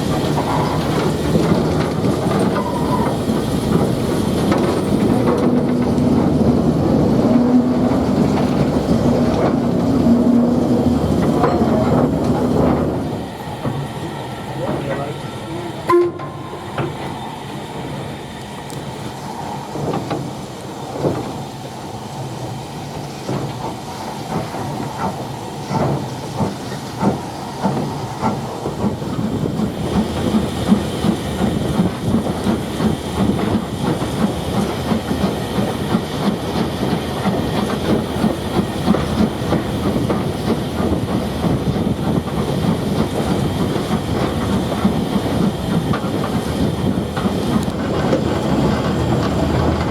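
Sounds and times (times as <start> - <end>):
train wheels clicking over rail joints: 0.0 - 49.9
steam hiss: 12.1 - 49.8.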